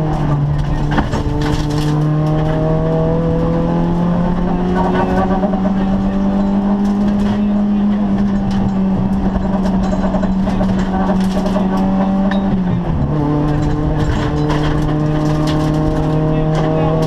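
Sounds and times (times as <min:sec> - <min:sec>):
rally car engine from inside: 0:00.0 - 0:17.0
clicks and rattles: 0:08.2 - 0:12.8, 0:13.4 - 0:17.0.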